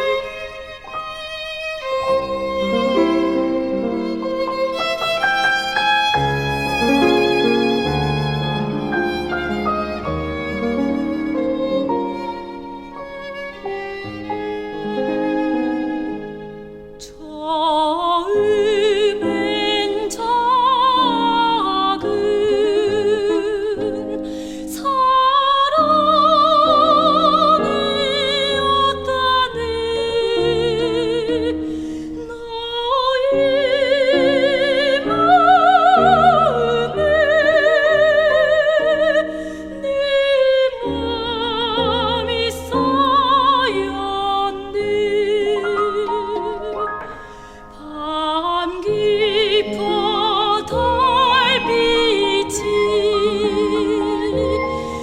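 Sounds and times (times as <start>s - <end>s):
instrumental accompaniment: 0.0s - 17.2s, 41.0s - 55.0s
soprano singing operatically: 17.0s - 55.0s.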